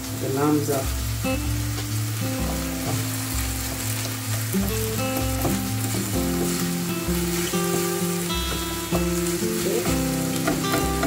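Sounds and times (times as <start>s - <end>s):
meat sizzling in a frying pan: 0.0s - 11.0s
spatula stirring in a pan: 5.2s - 11.0s.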